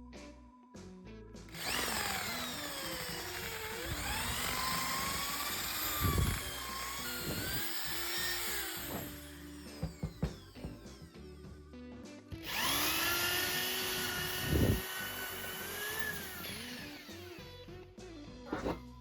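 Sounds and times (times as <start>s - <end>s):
electric power tool motor whine: 1.5s - 11.3s, 12.4s - 17.6s.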